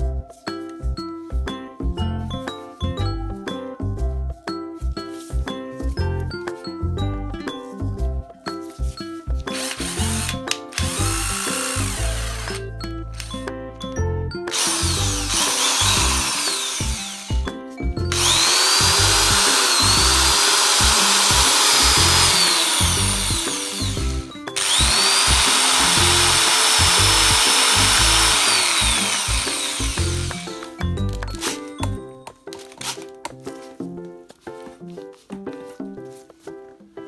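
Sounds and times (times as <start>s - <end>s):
background music: 0.0s - 37.0s
cordless power driver whining: 9.5s - 13.4s, 14.5s - 32.0s.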